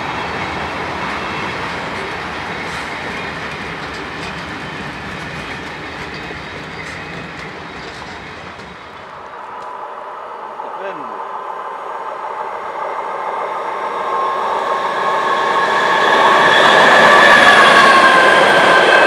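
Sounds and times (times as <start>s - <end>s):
freight wagons rolling on rails: 0.0s - 9.6s
train wheel clicks: 1.7s - 9.7s.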